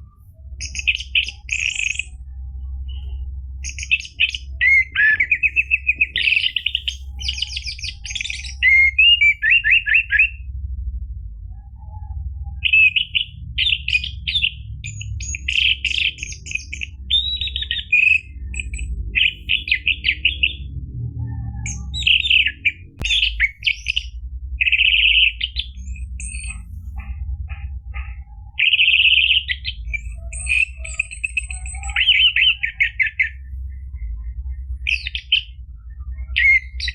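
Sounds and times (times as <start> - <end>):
thrush singing whistled trills: 0.0 - 10.5, 11.5 - 36.9
steady low hum: 0.0 - 36.9.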